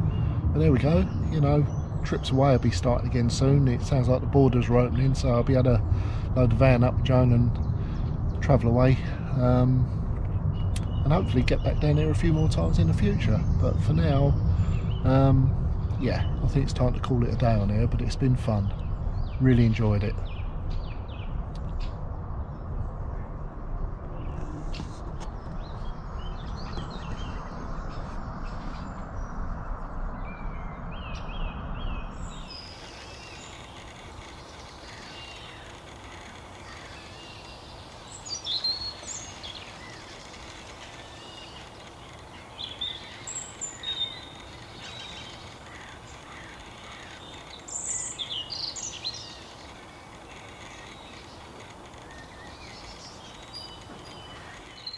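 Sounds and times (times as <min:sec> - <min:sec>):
faint outdoor hiss: 0:00.0 - 0:20.2, 0:32.1 - 0:54.9
low rumbling noise: 0:00.0 - 0:20.2, 0:32.1 - 0:54.9
small birds singing: 0:00.0 - 0:54.9.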